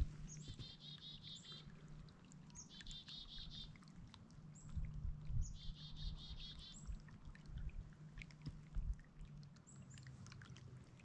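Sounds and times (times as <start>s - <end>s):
soft low thumps: 0.0s - 0.6s
small bird calling: 0.0s - 1.7s, 2.6s - 3.8s, 5.4s - 7.0s.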